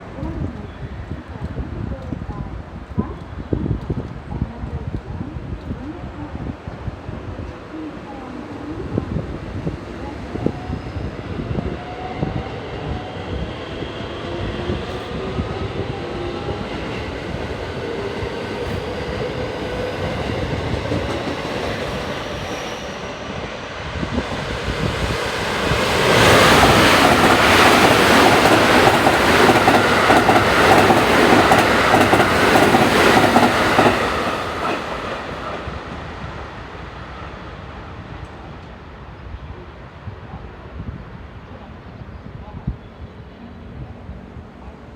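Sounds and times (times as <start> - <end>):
electric train passing at speed: 0.0 - 44.9
wheels clacking over rail joints: 25.4 - 35.6.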